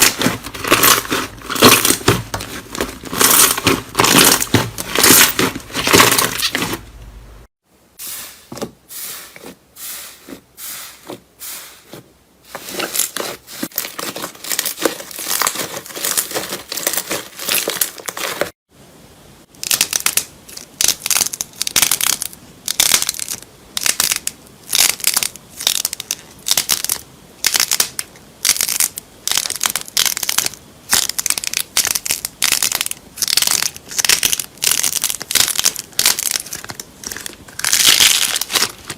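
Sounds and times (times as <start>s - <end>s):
slime squeezed crackling and popping: 28.5s - 38.9s.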